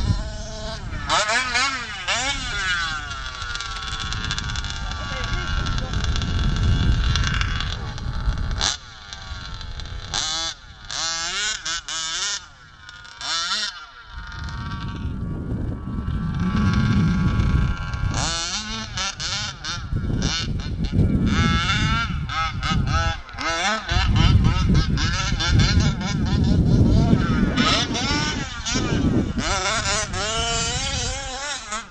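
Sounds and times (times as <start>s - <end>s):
small engine revving: 0.0s - 31.9s.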